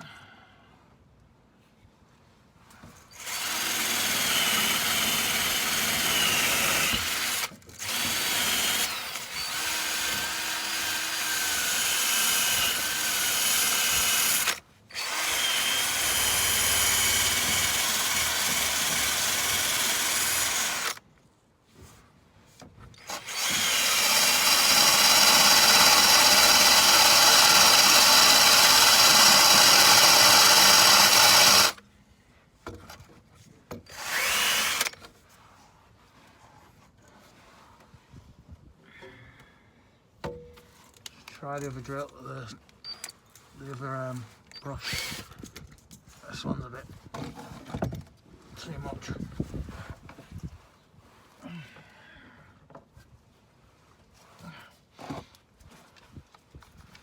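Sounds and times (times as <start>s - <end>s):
drill spinning wire brush on steel: 3.1s - 21.0s, 23.0s - 31.8s, 33.9s - 35.0s, 44.6s - 45.4s.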